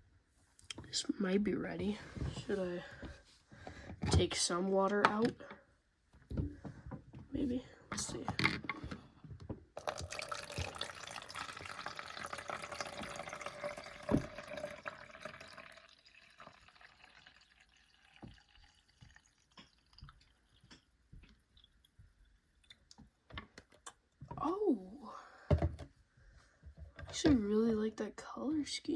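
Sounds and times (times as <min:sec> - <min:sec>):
water pouring from plastic container: 0:09.8 - 0:23.1
water dripping: 0:09.8 - 0:24.5.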